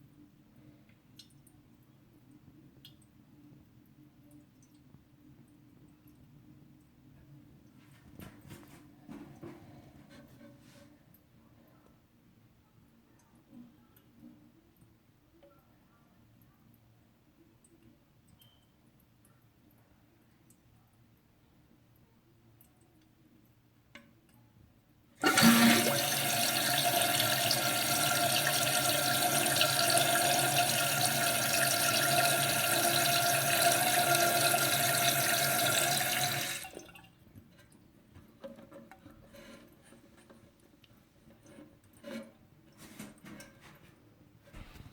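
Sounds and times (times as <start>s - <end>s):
toilet flushing: 25.2s - 37.1s
faint clicks and knocks: 37.2s - 44.9s.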